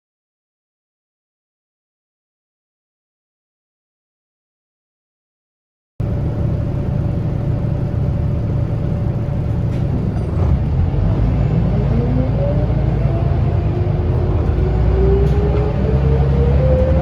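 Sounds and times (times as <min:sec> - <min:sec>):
bus engine rumble: 0:06.0 - 0:17.0.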